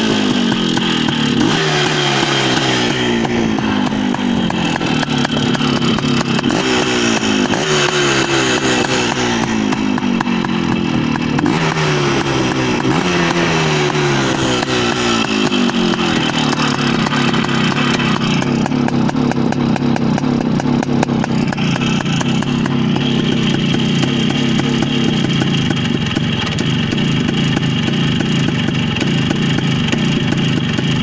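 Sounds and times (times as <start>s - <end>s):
motorcycle engine idling: 0.0s - 31.0s.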